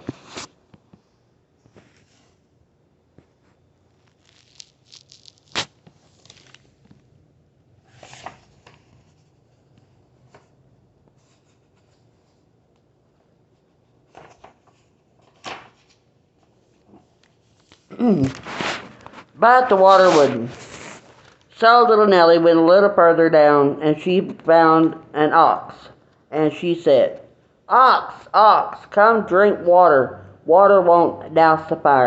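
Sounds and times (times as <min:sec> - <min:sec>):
book pages turning: 0:00.0 - 0:00.6, 0:03.2 - 0:07.1, 0:07.8 - 0:10.6, 0:14.0 - 0:21.6.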